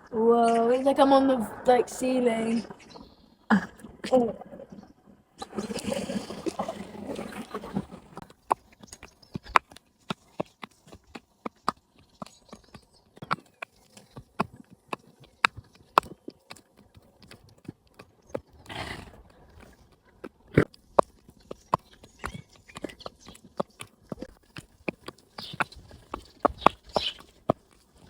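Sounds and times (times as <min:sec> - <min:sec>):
hooves clip-clopping on hard ground: 0:05.4 - 0:28.0.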